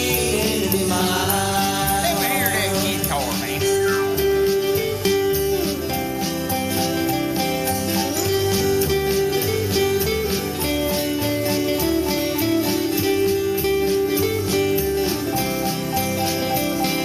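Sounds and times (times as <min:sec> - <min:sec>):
bass: 0:00.0 - 0:17.0
sliding lead guitar melody: 0:00.0 - 0:17.0
strummed rhythm guitar: 0:00.0 - 0:17.0.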